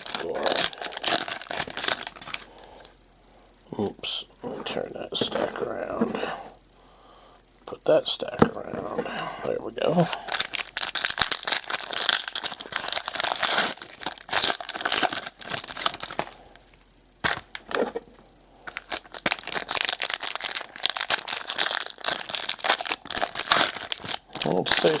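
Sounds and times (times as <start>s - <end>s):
card pack wrappers crinkling and tearing: 0.0s - 2.9s, 10.0s - 18.0s, 18.7s - 25.0s.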